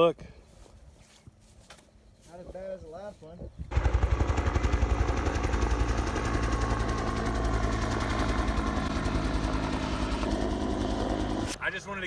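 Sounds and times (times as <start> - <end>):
small engine idling: 3.7 - 11.7.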